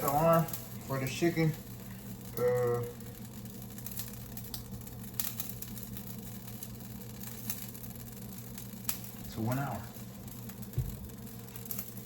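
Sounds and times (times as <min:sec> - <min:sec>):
kitchen appliance humming: 0:00.0 - 0:12.0
faint clicks and taps: 0:10.7 - 0:11.6.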